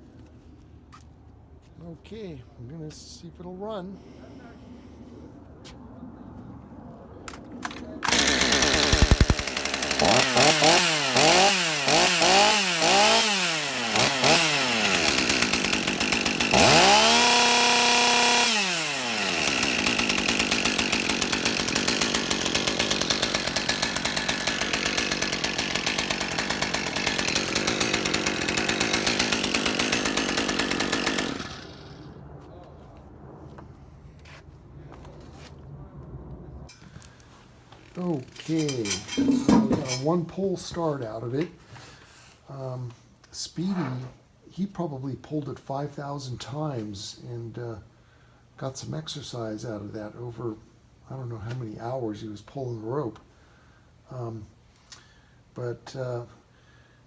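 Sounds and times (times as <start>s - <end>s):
chainsaw engine revving: 8.0s - 32.1s, 38.0s - 40.2s.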